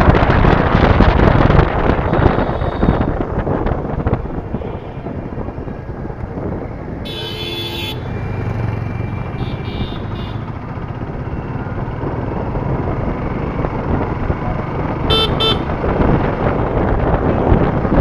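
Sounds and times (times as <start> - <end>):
wind noise on microphone: 0.0 - 18.0
vehicle horn honking: 2.1 - 3.1, 7.0 - 8.1, 9.4 - 10.5, 15.1 - 15.7
motorcycle engine running: 7.5 - 18.0.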